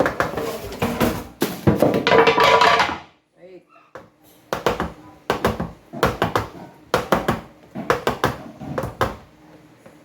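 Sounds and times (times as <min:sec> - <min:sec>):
kitchen utensils clattering: 0:00.0 - 0:03.1.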